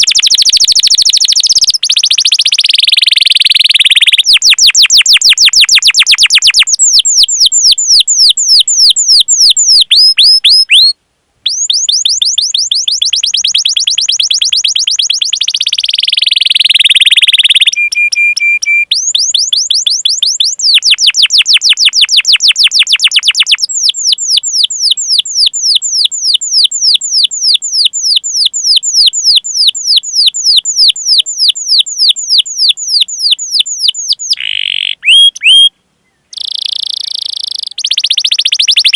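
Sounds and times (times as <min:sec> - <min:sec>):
canary chirping: 0:00.0 - 0:10.9, 0:11.5 - 0:35.7, 0:36.3 - 0:38.9
canary whistled note: 0:11.5 - 0:23.0.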